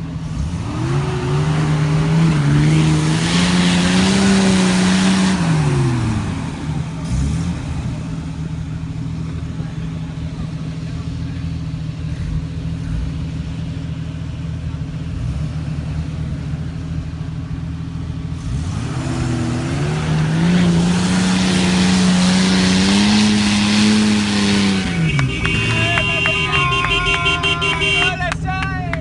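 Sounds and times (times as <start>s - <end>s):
off-road vehicle engine revving: 0.0s - 29.0s.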